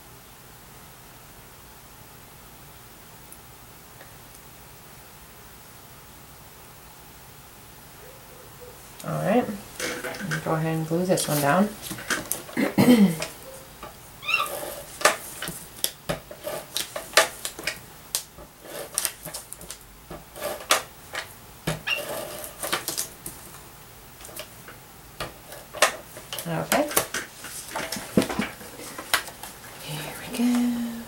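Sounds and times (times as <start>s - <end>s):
paper pieces tapping on tabletop: 25.2s - 29.6s.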